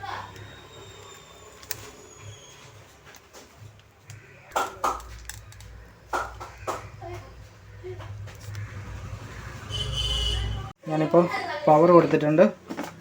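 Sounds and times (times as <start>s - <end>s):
small hard objects tapping: 3.0s - 7.4s.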